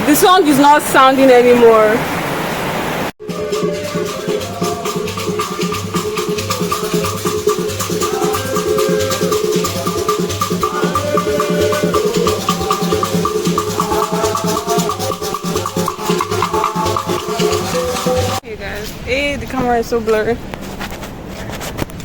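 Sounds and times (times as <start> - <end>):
quick ticking percussion: 3.2 - 18.4.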